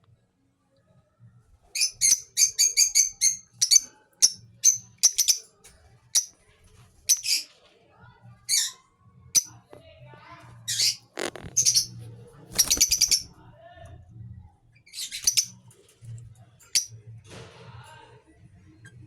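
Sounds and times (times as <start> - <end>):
lovebirds chirping: 1.8 - 5.4, 7.1 - 7.5, 10.7 - 13.4, 14.9 - 15.6.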